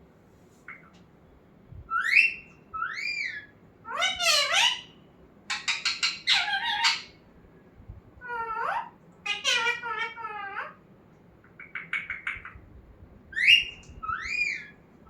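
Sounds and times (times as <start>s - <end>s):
parrot squawking: 2.0s - 4.9s, 5.5s - 7.2s, 8.2s - 10.8s, 13.4s - 14.7s
parrot whistles: 13.4s - 14.7s.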